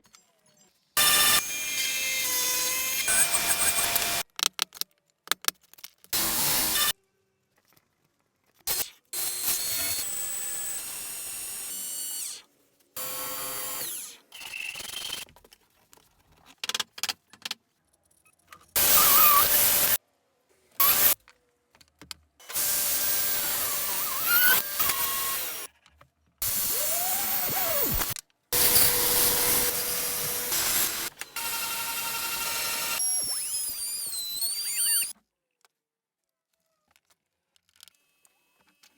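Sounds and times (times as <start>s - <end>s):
power tool running: 18.8s - 20.0s, 22.4s - 25.7s, 26.4s - 35.1s
woodworking tool sounds: 18.8s - 20.0s, 20.7s - 21.2s, 22.4s - 35.1s.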